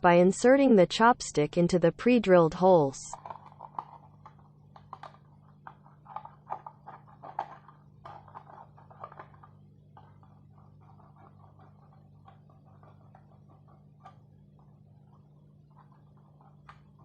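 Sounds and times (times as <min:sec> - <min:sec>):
steady low hum: 0:00.0 - 0:17.0
plastic bottle crinkling: 0:03.1 - 0:17.0.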